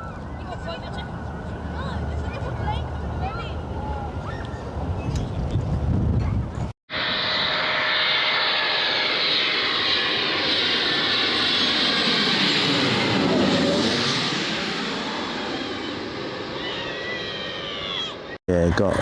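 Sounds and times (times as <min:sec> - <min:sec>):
jet engines running: 0:00.0 - 0:05.8, 0:06.9 - 0:18.4
sweeping swish: 0:06.9 - 0:16.5.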